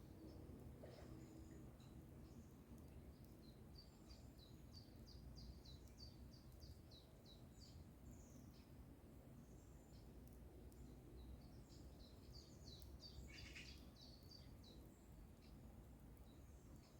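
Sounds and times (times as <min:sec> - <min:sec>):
songbird chirping: 0:10.7 - 0:15.6.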